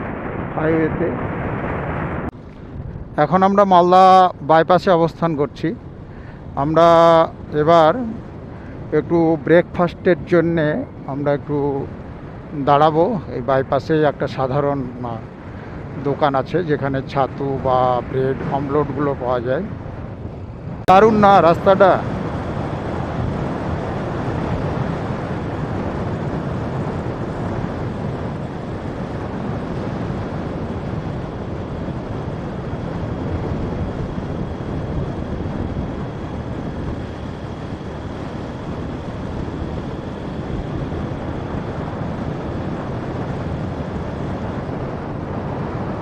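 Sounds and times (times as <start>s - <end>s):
road noise: 0.0s - 46.0s
wind buffeting microphone: 0.0s - 46.0s
motorcycle cruising: 4.9s - 46.0s.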